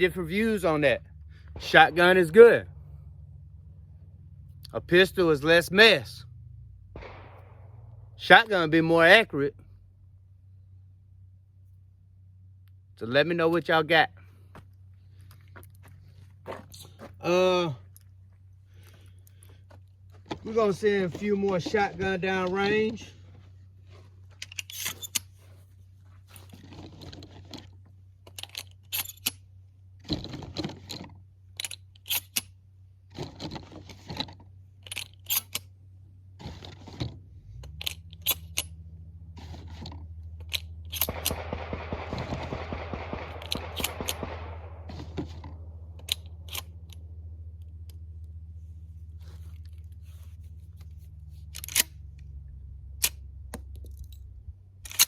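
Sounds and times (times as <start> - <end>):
low steady hum: 0.0 - 55.0
person speaking: 20.4 - 23.2
sharp clicks and knocks: 39.4 - 48.0.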